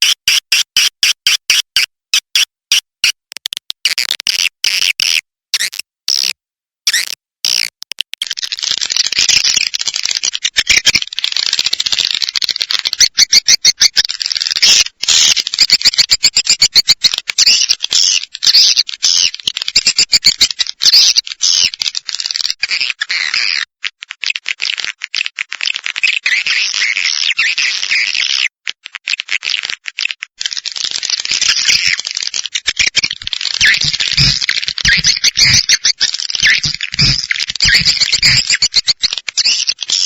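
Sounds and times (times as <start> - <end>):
swiftlet chirps and buzzes: 33.6 - 39.1.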